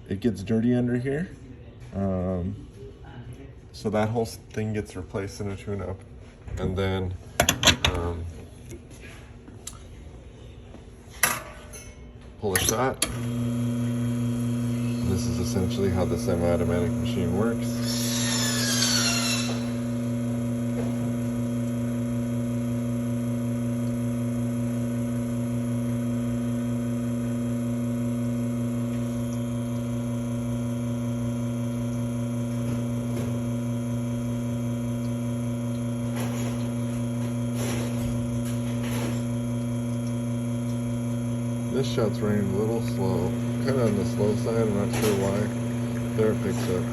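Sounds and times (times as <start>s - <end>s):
espresso machine pump humming: 12.7s - 46.9s
falling high whine: 17.6s - 20.1s.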